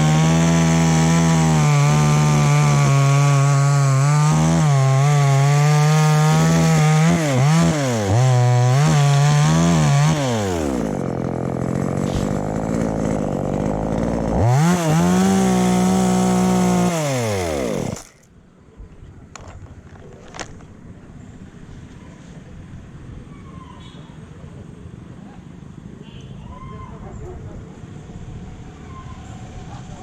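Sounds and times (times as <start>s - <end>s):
chainsaw revving and idling: 0.0s - 18.3s.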